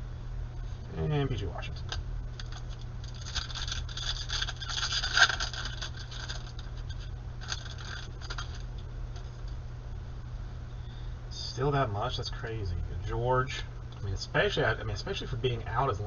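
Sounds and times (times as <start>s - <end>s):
cards scraping and clicking: 1.8s - 9.6s.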